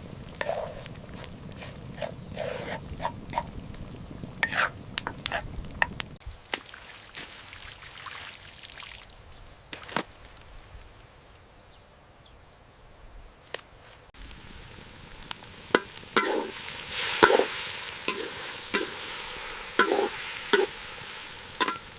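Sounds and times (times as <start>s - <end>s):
food sizzling in a pan: 0.0s - 6.2s, 14.2s - 21.9s
utensil clinking against pan: 15.7s - 21.9s.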